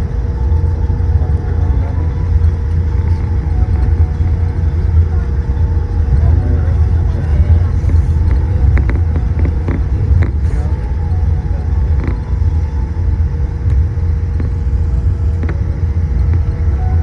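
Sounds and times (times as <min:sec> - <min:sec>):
aircraft cabin low rumble: 0:00.0 - 0:17.0
constant hum: 0:00.0 - 0:17.0.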